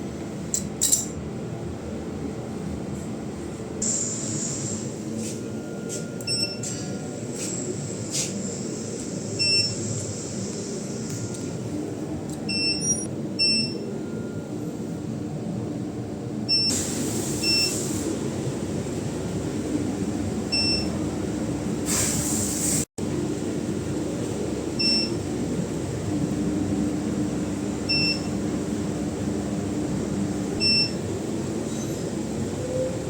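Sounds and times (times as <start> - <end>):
steady machine hum: 0.0 - 21.9, 23.0 - 33.0
short electronic beeps: 5.8 - 6.8.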